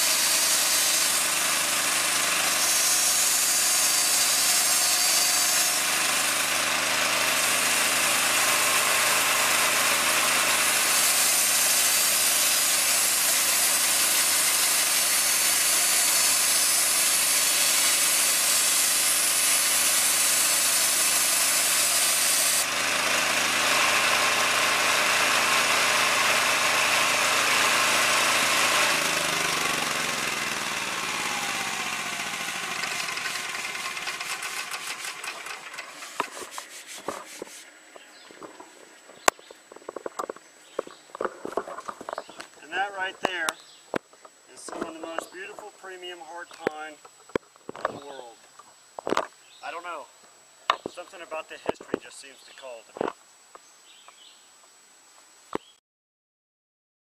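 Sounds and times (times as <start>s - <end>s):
bandsaw cutting wood: 0.0s - 37.6s
bandsaw coasting down: 0.0s - 37.7s.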